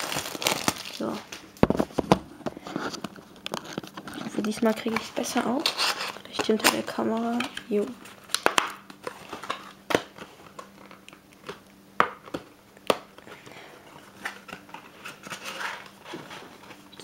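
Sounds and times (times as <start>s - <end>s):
packaging crinkling: 0.0s - 1.6s, 2.6s - 11.6s.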